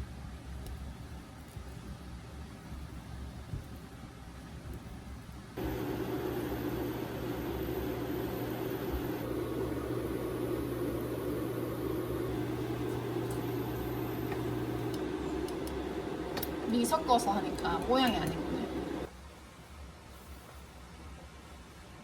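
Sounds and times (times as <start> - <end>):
electric appliance humming and whirring: 5.6 - 19.1.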